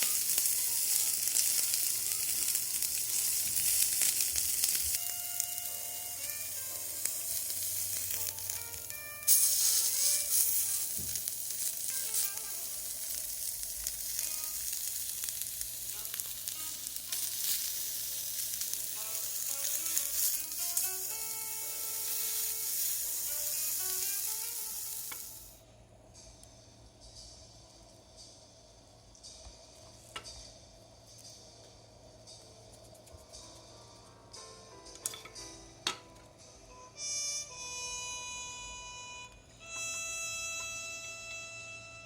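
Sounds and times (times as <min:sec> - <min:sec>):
food sizzling on griddle: 0:00.0 - 0:25.6
light background melody: 0:00.0 - 0:42.0.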